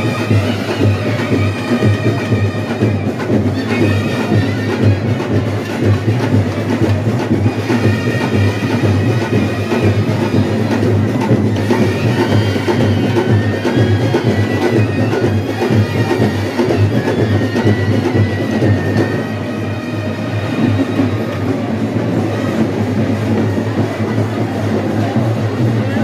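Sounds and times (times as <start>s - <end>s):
loud dense drumming: 0.0s - 26.0s.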